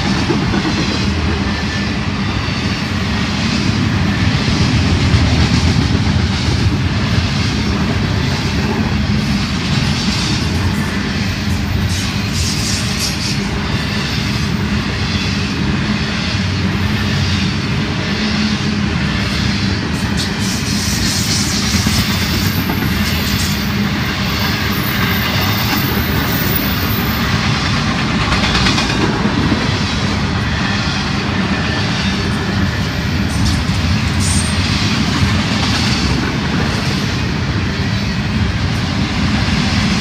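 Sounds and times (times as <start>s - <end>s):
steel wheels running on rails: 0.0s - 40.0s.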